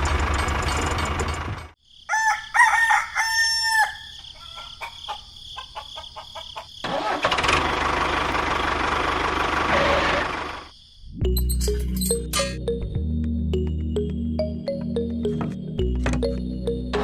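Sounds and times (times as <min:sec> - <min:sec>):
rooster crowing: 0:02.0 - 0:06.8.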